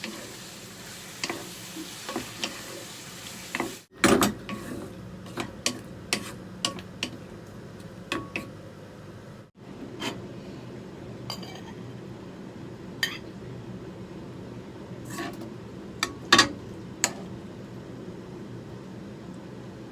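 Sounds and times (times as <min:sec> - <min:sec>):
food sizzling in a pan: 0:00.0 - 0:03.9.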